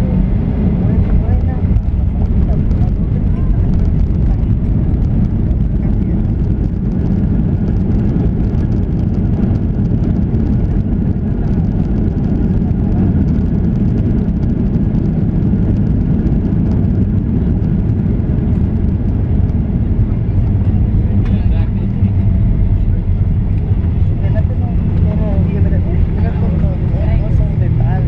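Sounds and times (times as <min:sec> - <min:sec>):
aircraft cabin engine rumble: 0:00.0 - 0:28.0.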